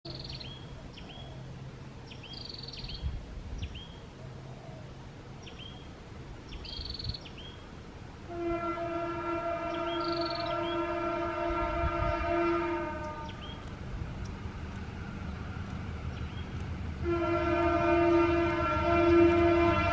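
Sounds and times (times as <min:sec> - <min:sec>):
locomotive horn blast: 0:08.3 - 0:13.6, 0:17.0 - 0:19.9.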